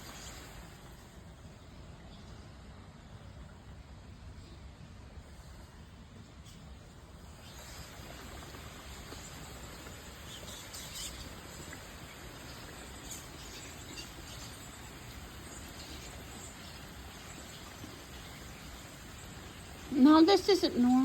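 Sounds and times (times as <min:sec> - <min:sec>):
steady outdoor hiss: 0:00.0 - 0:21.0
birds chirping: 0:07.2 - 0:21.0.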